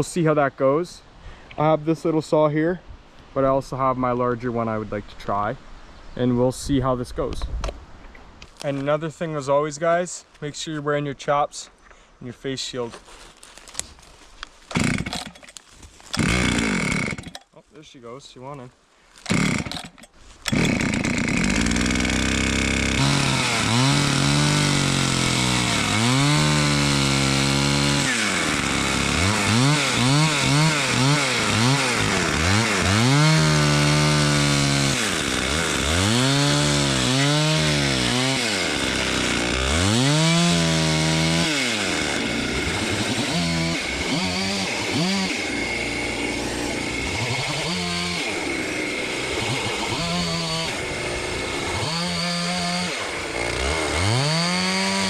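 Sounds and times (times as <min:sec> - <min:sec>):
chainsaw cutting log: 0:14.7 - 0:17.5, 0:19.2 - 0:55.0.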